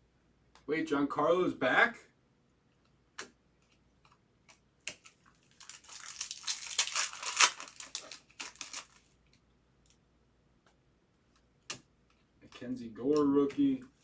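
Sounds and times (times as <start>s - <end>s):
foil wrapper crinkling: 4.9s - 9.2s.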